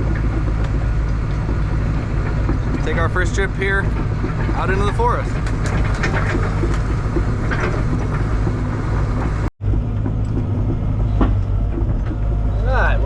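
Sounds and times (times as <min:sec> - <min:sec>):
undercarriage knocks: 0:00.0 - 0:12.5
excavator diesel engine running: 0:00.0 - 0:13.0.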